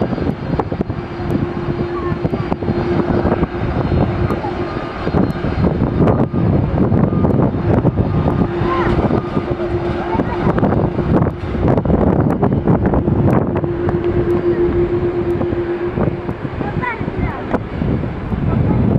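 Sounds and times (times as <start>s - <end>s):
steady hum: 0.0s - 18.6s
airliner engines roaring: 0.0s - 18.9s.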